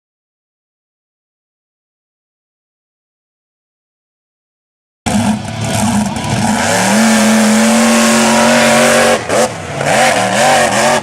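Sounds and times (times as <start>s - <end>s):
monster truck engine revving: 5.1s - 11.0s.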